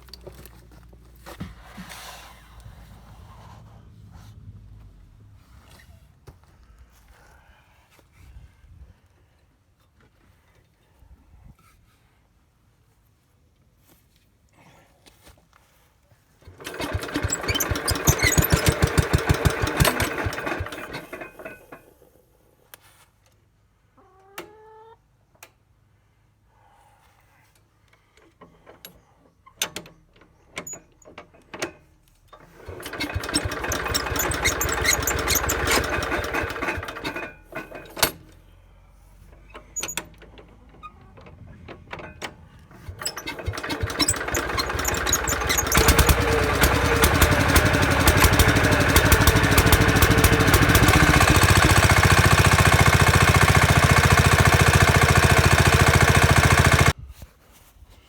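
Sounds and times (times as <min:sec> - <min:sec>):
small tractor engine running: 0:16.5 - 0:21.8, 0:32.4 - 0:38.0, 0:42.8 - 0:57.0.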